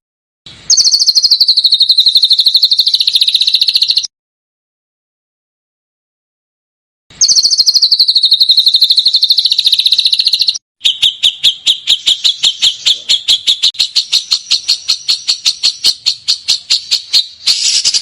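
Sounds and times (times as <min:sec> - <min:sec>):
songbird trill: 0:00.5 - 0:04.1, 0:07.1 - 0:18.0
bird sharp chips: 0:00.6 - 0:04.1, 0:07.2 - 0:18.0.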